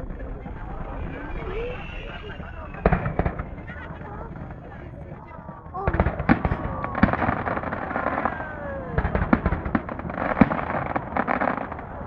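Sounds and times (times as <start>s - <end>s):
falling fireworks whistles: 0.0s - 5.2s
fireworks bangs and crackling: 0.0s - 12.0s.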